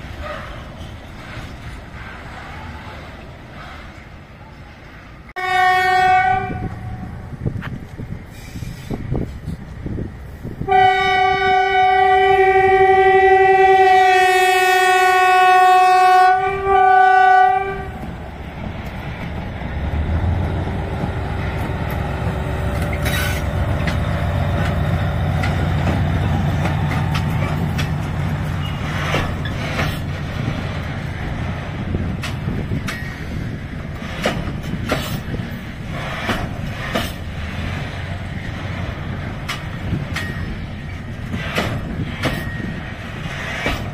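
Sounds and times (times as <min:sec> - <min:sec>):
locomotive horn blast: 0:05.4 - 0:07.1, 0:10.6 - 0:18.1
wheels clattering over rail joints: 0:18.0 - 0:43.9.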